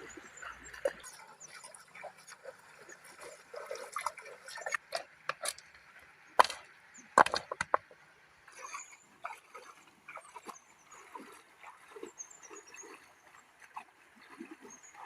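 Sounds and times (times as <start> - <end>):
hard objects knocking and clicking: 6.4 - 6.6, 7.2 - 8.0.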